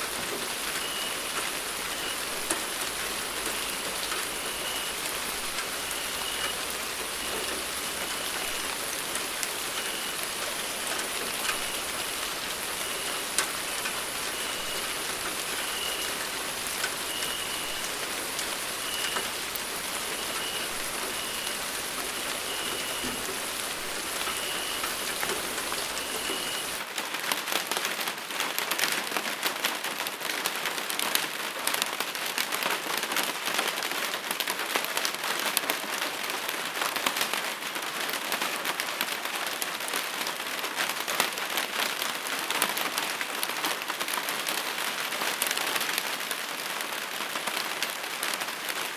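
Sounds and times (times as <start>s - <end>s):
steady rain hissing: 0.0s - 27.1s
crackling patter of raindrops: 0.0s - 48.9s.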